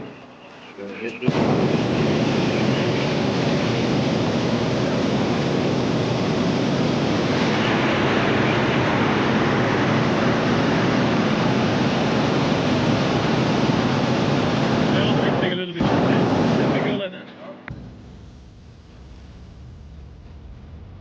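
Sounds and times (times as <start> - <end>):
propane burner firing: 1.0 - 17.0.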